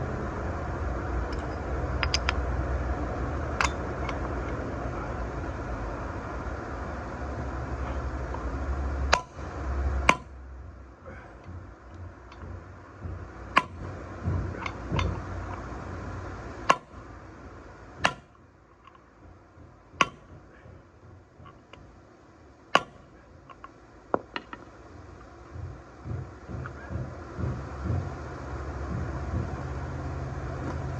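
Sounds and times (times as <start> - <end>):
hammer striking metal: 3.6 - 4.2, 9.1 - 10.4, 11.4 - 15.7, 16.6 - 17.1, 18.0 - 18.4, 20.0 - 20.6, 22.7 - 23.2.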